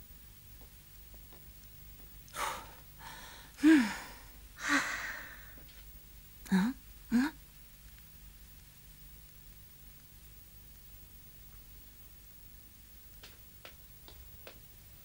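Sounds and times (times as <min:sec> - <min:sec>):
person gasping and sighing: 0:02.3 - 0:05.6.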